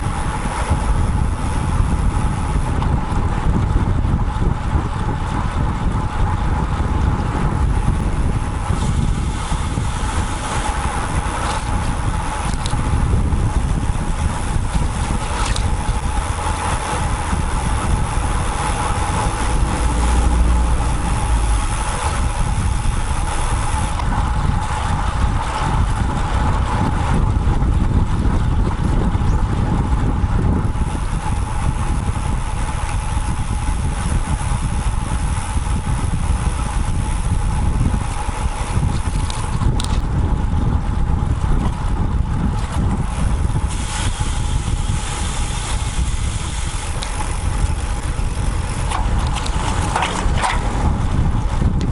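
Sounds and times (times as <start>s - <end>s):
wind and road noise: 0.0s - 51.9s
nearby motor traffic: 7.5s - 27.0s, 43.9s - 51.8s.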